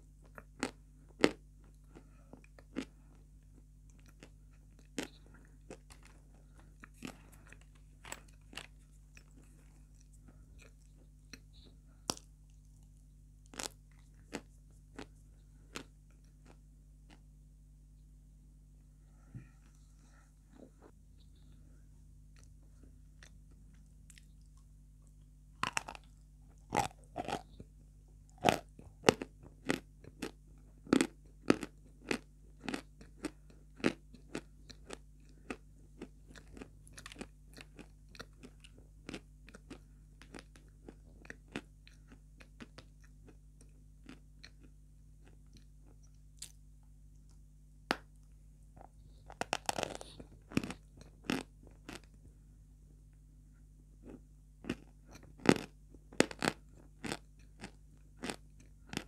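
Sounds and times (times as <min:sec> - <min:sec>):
person crunching hard chunks: 0:12.0 - 0:12.3, 0:13.5 - 0:15.1, 0:25.6 - 0:27.6, 0:28.3 - 0:44.6, 0:48.8 - 0:52.1, 0:54.0 - 0:59.0.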